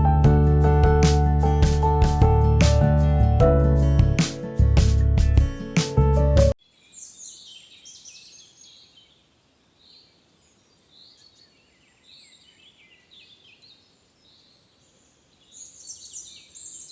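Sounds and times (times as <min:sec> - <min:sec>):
songbirds chirping and trilling: 0:06.7 - 0:16.9.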